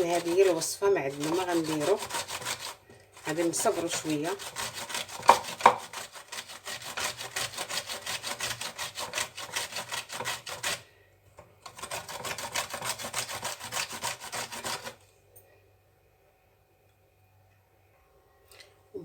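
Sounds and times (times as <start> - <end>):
lemon scraping on a grater: 0.0 - 10.8, 11.7 - 15.0.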